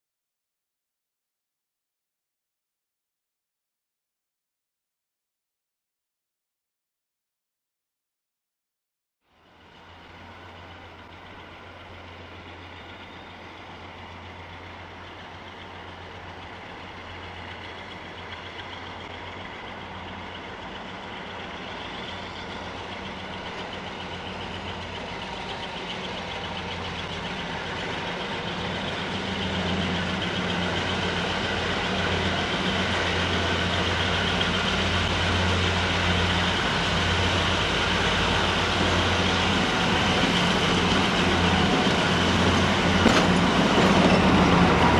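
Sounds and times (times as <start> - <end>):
diesel locomotive engine humming: 9.3 - 44.9.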